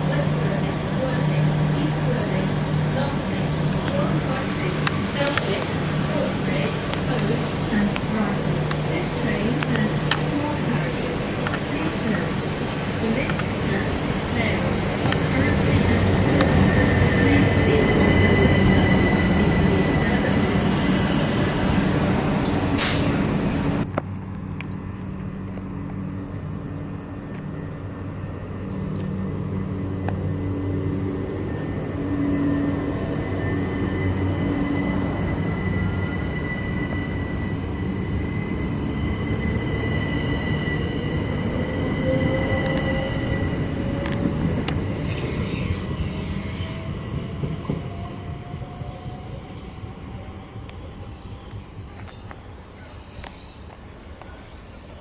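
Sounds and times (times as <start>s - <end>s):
train mechanical hum: 0.0s - 18.8s, 19.4s - 32.2s, 42.0s - 55.0s
high squeal from wheels: 16.7s - 21.9s, 31.6s - 46.9s.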